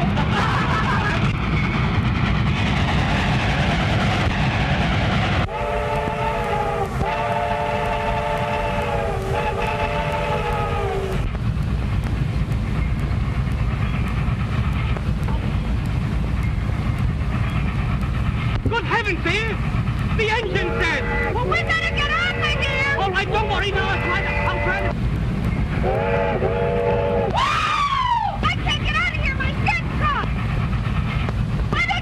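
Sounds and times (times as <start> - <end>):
low rumble of running train: 0.0 - 32.0
steam train whistle blasts: 5.5 - 11.2, 20.5 - 24.9, 25.8 - 28.1.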